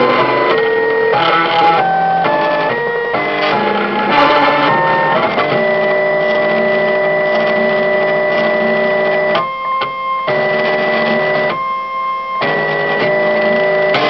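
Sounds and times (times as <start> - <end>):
stepper motors whining: 0.0 - 9.4.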